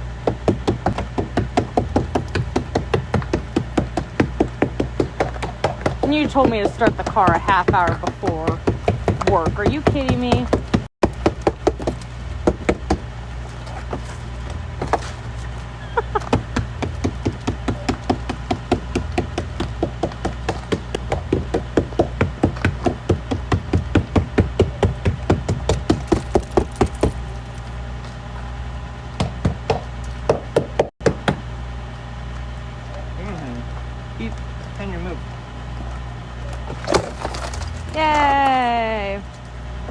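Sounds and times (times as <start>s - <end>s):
steady low hum: 0.0s - 39.9s
hammer knocking on car door: 0.2s - 13.1s, 16.1s - 27.2s, 29.2s - 31.4s.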